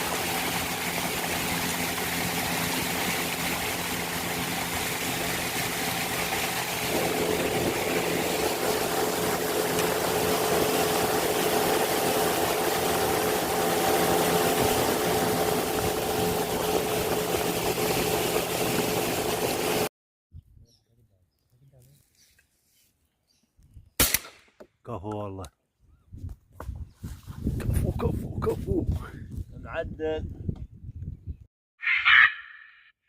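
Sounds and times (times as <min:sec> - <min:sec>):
water hissing: 0:00.0 - 0:19.8
motorboat engine running: 0:00.0 - 0:19.9.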